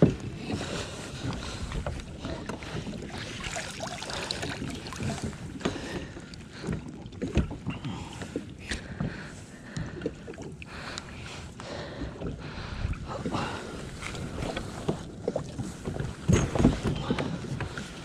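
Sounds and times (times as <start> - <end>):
water splashing around kayak: 0.0 - 18.0
wind on microphone: 12.4 - 18.0.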